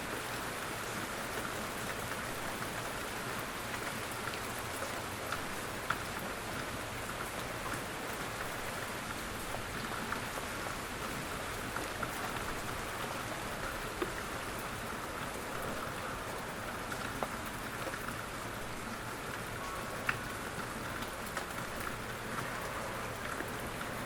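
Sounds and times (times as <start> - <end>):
gentle rain falling: 0.0 - 24.0.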